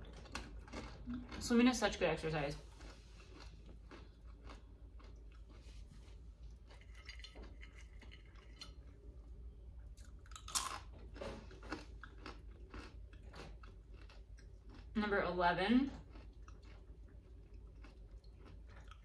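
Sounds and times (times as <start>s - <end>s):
person chewing crunchy snack: 0.0s - 1.5s, 2.6s - 9.1s, 9.8s - 15.0s, 15.9s - 19.0s
loud crunching bite: 10.0s - 14.9s.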